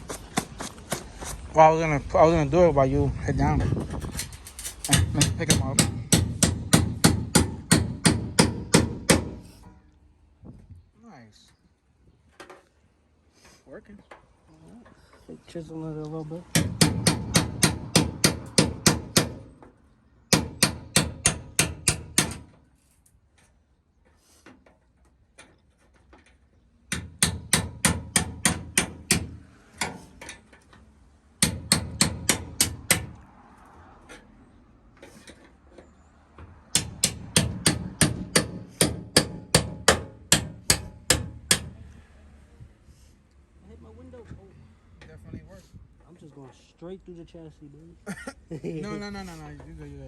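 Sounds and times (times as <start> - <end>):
hammer striking chisel on metal: 4.8 - 9.8, 16.5 - 19.6, 20.3 - 22.5, 26.9 - 30.4, 31.4 - 33.2, 36.7 - 41.8.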